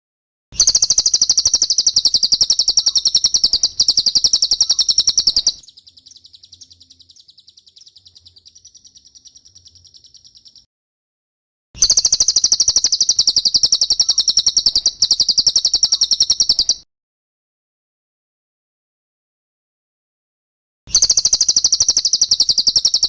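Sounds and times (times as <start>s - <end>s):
fast high chattering bird trill: 0.6s - 10.7s, 11.8s - 16.8s, 21.0s - 23.0s.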